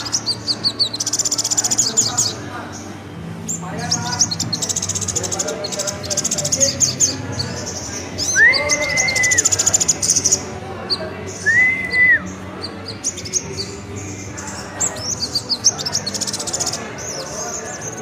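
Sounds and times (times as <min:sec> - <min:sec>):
bird twittering and trilling: 0:00.0 - 0:18.0
low whistled bird notes: 0:08.2 - 0:10.4, 0:11.4 - 0:12.8.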